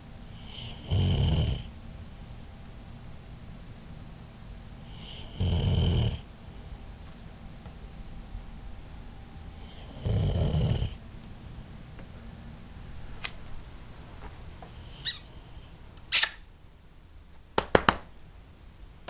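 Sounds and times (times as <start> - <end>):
dog breathing: 0.3 - 1.7, 4.8 - 6.2, 9.6 - 11.0
dog snoring: 0.3 - 1.7, 4.8 - 6.3, 9.6 - 11.0.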